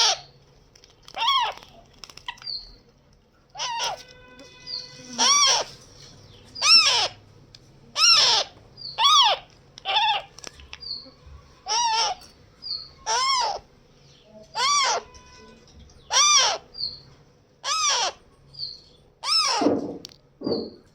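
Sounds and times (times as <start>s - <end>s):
parrot calling loudly: 0.0s - 0.3s, 1.1s - 1.6s, 3.5s - 5.8s, 6.6s - 7.2s, 7.9s - 10.3s, 11.6s - 12.2s, 13.0s - 13.7s, 14.5s - 15.2s, 16.0s - 17.0s, 17.6s - 18.2s, 19.2s - 19.8s.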